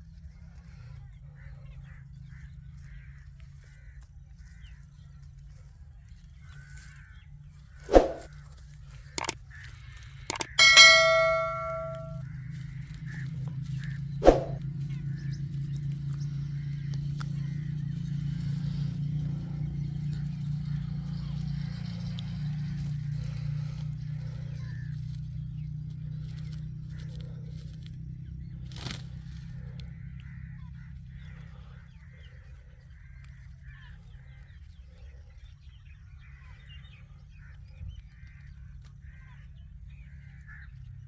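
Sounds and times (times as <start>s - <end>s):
faint short chirps: 10.3s - 12.2s
metallic clang ringing: 10.3s - 12.2s, 14.2s - 14.6s
sharp knocks: 14.2s - 14.6s.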